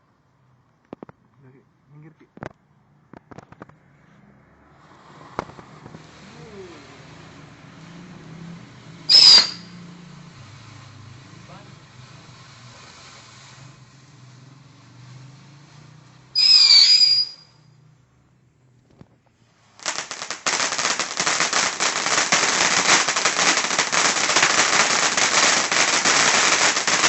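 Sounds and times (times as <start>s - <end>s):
firework fountain crackling: 2.4s - 3.8s, 4.8s - 17.8s, 18.8s - 27.0s
loud whistle: 9.1s - 9.7s, 16.4s - 17.6s.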